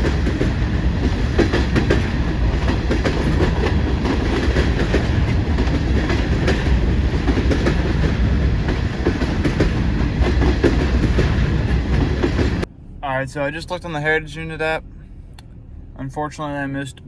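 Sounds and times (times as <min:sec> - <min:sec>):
wheels clanking over rail joints: 0:00.0 - 0:12.7
freight train rumbling past: 0:00.0 - 0:17.0.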